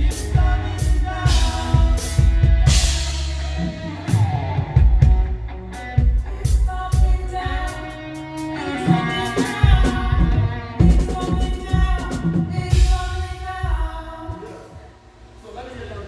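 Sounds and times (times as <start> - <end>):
heavy kick drum: 0.0 - 3.5, 9.6 - 14.2
people singing: 0.0 - 5.4, 6.2 - 14.9
live band playing: 0.0 - 14.7
cymbal crashes: 0.1 - 3.8.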